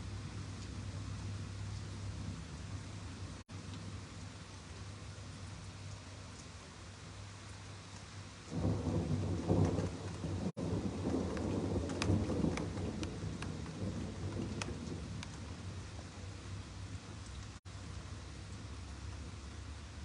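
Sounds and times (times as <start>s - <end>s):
low rumble of thunder: 0.0s - 4.1s, 8.3s - 20.0s
steady rain falling: 0.0s - 20.0s
sharp water drips: 3.4s - 20.0s.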